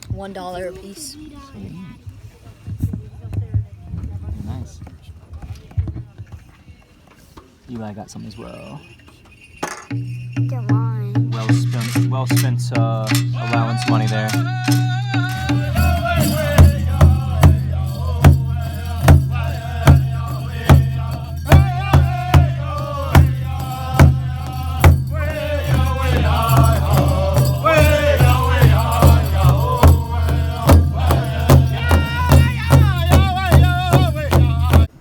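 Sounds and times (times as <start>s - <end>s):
big drum beating: 10.4s - 35.0s
singers chanting in high voices: 13.1s - 34.9s.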